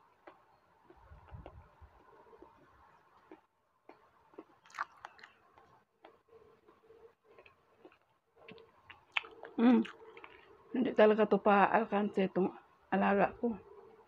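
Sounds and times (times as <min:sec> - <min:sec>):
person chewing: 0:00.2 - 0:10.7.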